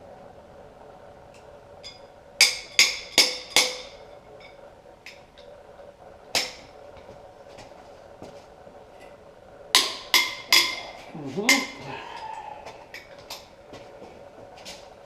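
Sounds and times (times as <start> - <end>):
metal tools tapping and clinking: 9.8 - 11.8
ringing metal knocks: 9.8 - 11.8.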